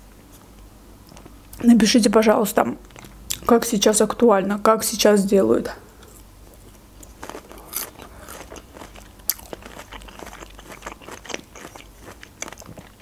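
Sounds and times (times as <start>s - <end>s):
chewing food with crunches: 2.8s - 3.6s, 6.0s - 13.0s.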